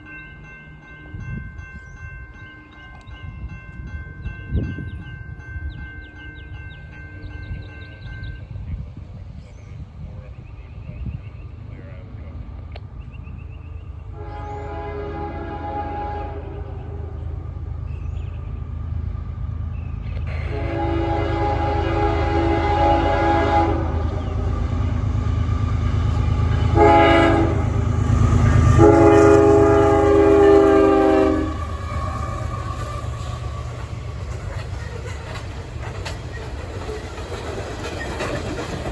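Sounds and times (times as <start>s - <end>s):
locomotive engine rumble: 1.1s - 38.9s
locomotive air horn: 14.1s - 17.2s, 20.3s - 24.2s, 26.7s - 27.8s, 28.4s - 33.9s.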